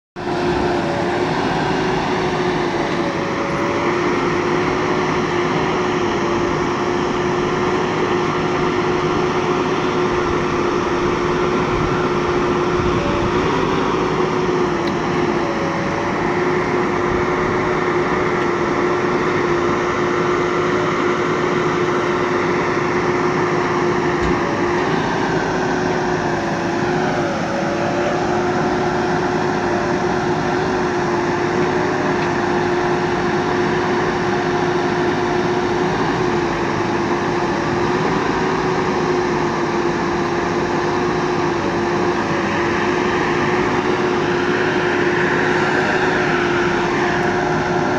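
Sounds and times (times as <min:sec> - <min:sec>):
diesel engine droning: 0:00.1 - 0:47.9.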